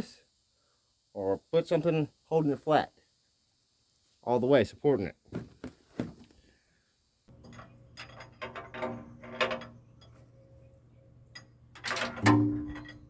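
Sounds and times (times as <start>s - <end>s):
metal tools clinking and clanking: 7.3s - 13.0s
steady low hum: 7.3s - 13.0s.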